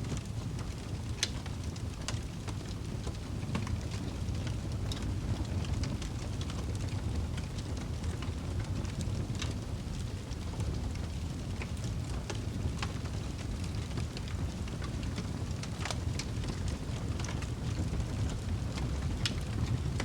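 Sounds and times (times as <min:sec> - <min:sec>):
fireplace crackling and popping: 0:00.1 - 0:20.0.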